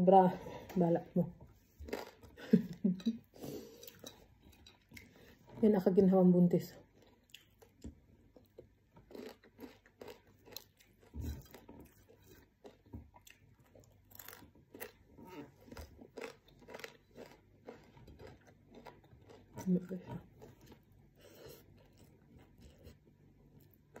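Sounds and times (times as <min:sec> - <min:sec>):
person chewing crispy food: 0:01.8 - 0:02.7, 0:06.9 - 0:24.0.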